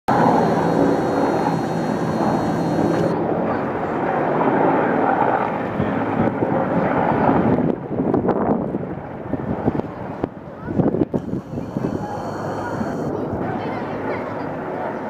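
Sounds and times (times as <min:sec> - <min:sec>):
high turbine whine: 0:00.1 - 0:03.2, 0:11.2 - 0:13.1
helicopter engine and rotor: 0:00.1 - 0:05.4, 0:11.2 - 0:13.2.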